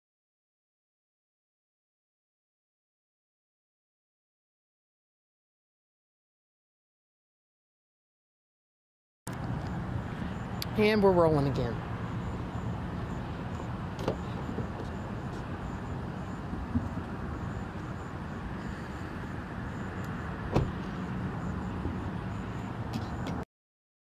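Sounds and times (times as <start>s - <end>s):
vehicle engine idling: 9.3s - 23.3s.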